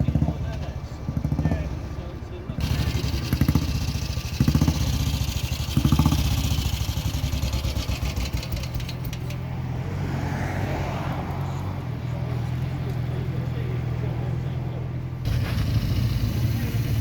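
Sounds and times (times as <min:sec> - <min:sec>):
motorcycle engine blipping and idling: 0:00.0 - 0:09.6, 0:11.8 - 0:17.0.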